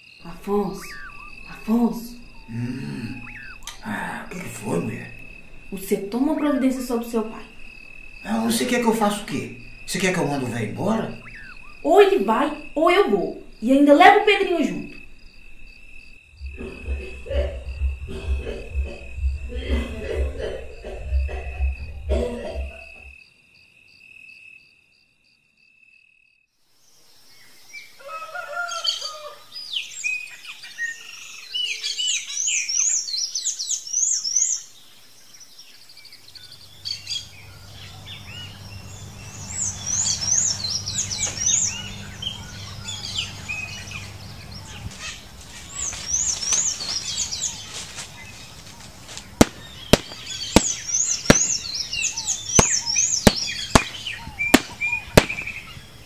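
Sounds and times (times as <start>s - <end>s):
birds chirping: 0.0s - 23.0s, 28.7s - 56.0s
low hum: 14.9s - 22.5s
stick striking hide: 49.4s - 51.6s, 52.6s - 54.0s, 54.6s - 55.6s.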